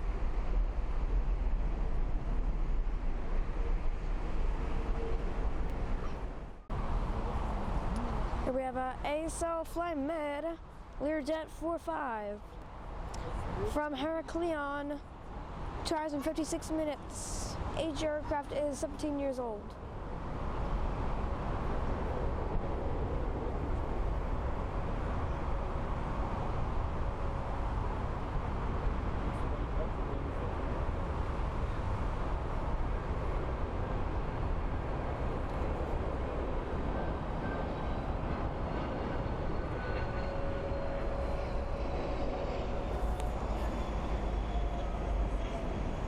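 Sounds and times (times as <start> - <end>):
jet engines rumbling: 12.7 - 46.0.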